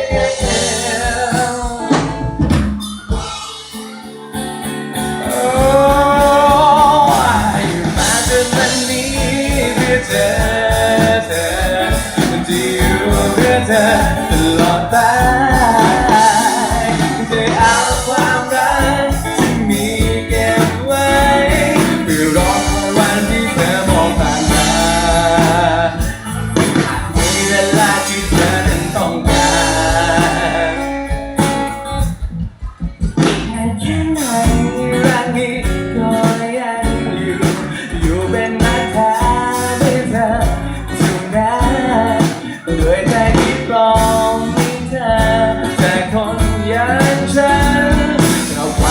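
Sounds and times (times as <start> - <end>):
pop love ballad band music: 0.0 - 48.9.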